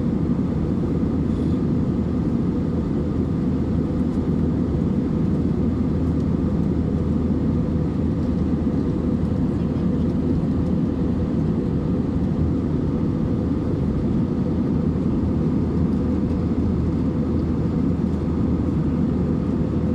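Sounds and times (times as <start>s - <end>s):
airplane cabin rumble: 0.0s - 19.9s.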